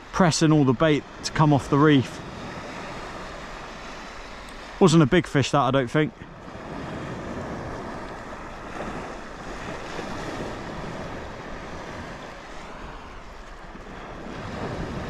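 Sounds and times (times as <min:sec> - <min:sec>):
water washing around kayak: 0:00.0 - 0:15.0
wind on microphone: 0:06.2 - 0:15.0.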